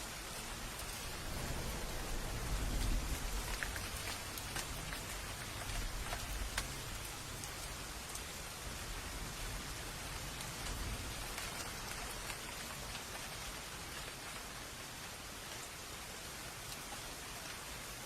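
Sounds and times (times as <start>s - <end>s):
steady rain: 0.0s - 18.0s
distant thunder rumble: 0.2s - 12.3s.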